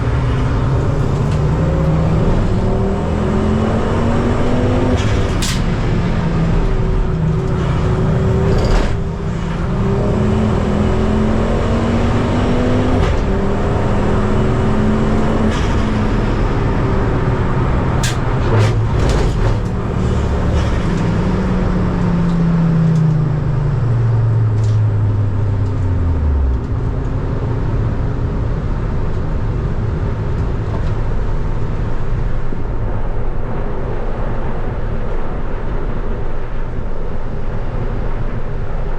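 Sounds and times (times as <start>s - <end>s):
race car engine running hard: 0.0s - 38.9s
road and wind noise: 0.0s - 38.9s.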